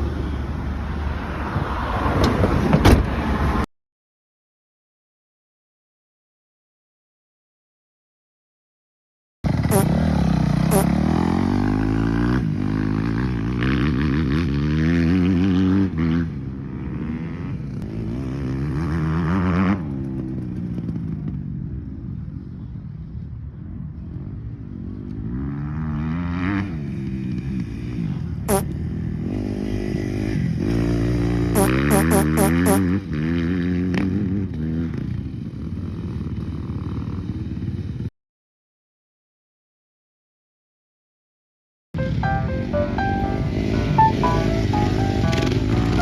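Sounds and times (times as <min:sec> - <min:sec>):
motocross bike engine revving: 0:09.5 - 0:12.3.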